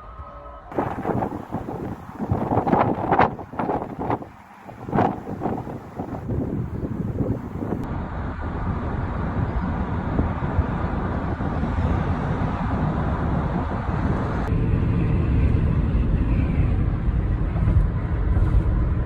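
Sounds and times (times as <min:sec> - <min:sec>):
road traffic: 0:00.7 - 0:07.9
wind buffeting microphone: 0:00.7 - 0:07.9.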